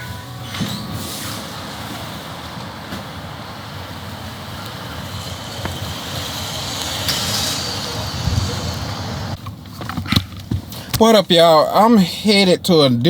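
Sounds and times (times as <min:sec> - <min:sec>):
road noise inside moving car: 0:00.0 - 0:09.9.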